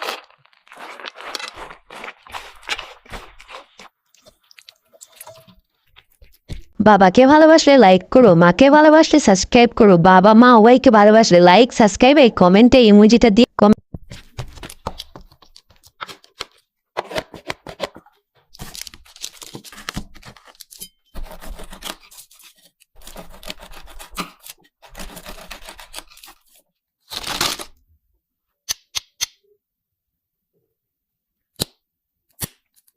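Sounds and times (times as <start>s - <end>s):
wrapper tearing and crackling: 0.0s - 5.4s, 18.6s - 20.8s, 21.7s - 27.8s
bites crunching: 0.0s - 6.7s.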